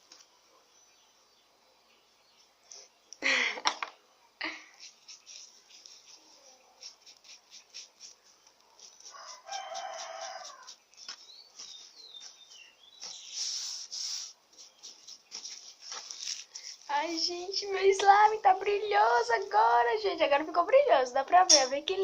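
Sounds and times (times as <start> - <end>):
small birds chirping: 4.3 - 22.0
rooster crowing: 9.0 - 10.8.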